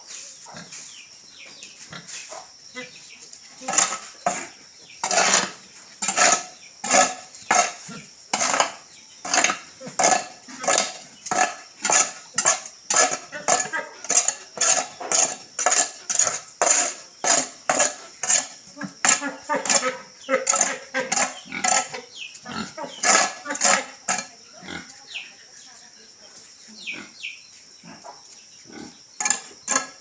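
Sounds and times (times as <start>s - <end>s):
cleaning tool scraping floor: 3.6s - 22.0s.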